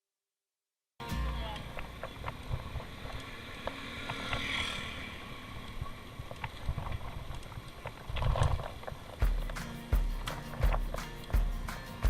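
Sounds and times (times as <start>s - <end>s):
low rumble of riding: 1.2s - 11.5s
bicycle clicks and rattles: 2.0s - 4.6s, 5.5s - 9.6s.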